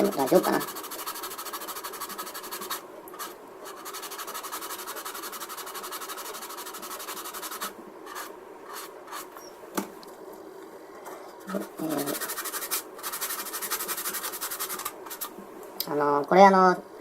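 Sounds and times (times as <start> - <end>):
sandpaper rubbing on plastic: 0.0 - 9.3, 11.5 - 15.3.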